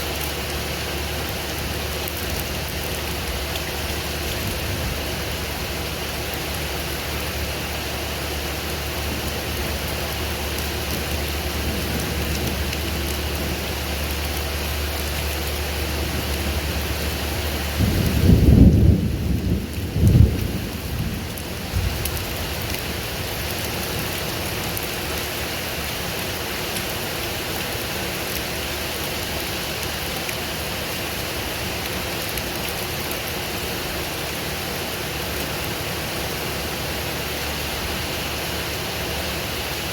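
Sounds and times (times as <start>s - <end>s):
steady rain falling: 0.0s - 39.9s
thunder rumbling: 2.4s - 7.5s, 9.2s - 24.2s.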